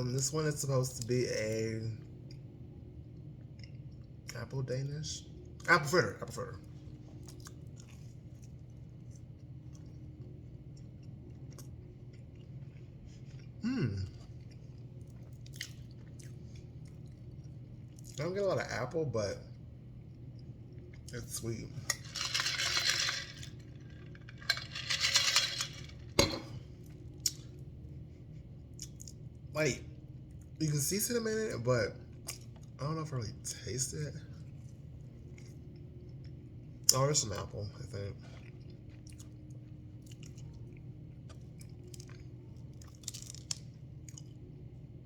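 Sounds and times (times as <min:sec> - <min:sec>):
person chewing crunchy food: 0:06.8 - 0:18.2, 0:38.2 - 0:44.4.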